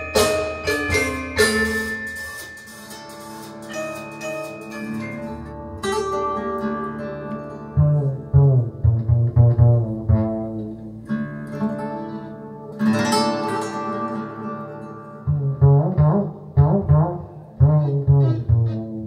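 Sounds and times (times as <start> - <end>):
held string-like tones: 0.0 - 19.0
deep plucked bass notes: 7.7 - 11.1, 15.2 - 19.0.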